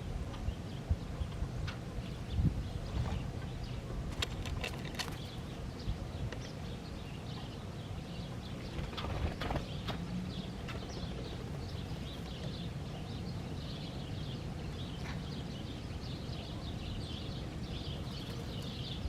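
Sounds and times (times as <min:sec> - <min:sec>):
steady low rumble: 0:00.0 - 0:15.0
songbirds twittering: 0:00.0 - 0:19.0.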